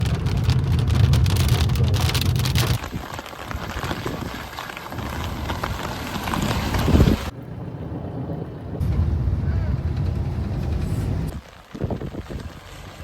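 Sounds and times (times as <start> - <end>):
deep rumble: 0.0 - 4.3, 5.0 - 13.0
heavy rain falling: 0.0 - 7.3.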